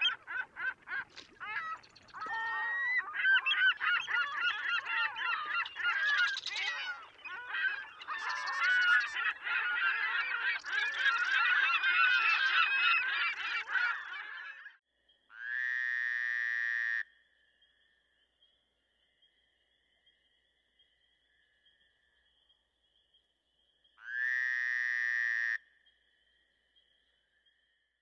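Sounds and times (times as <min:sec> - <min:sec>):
chorus of birds calling: 0:00.0 - 0:14.8.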